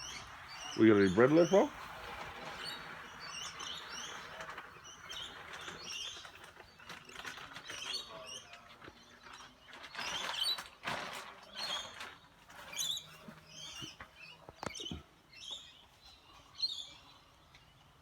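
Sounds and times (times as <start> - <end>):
lorikeets chattering: 0.0 - 6.4
noisy rustles: 0.0 - 14.3.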